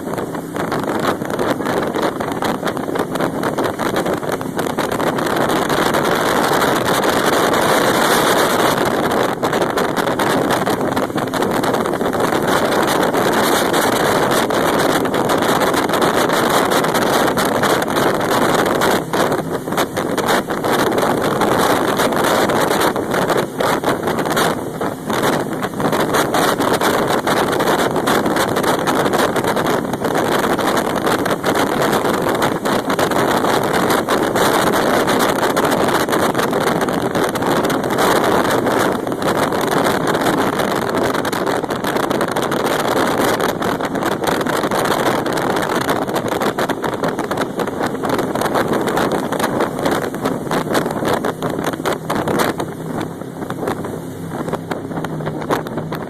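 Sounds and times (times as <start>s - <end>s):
jet boat engine and water rushing: 0.0s - 56.0s
wind buffeting microphone: 0.0s - 56.0s.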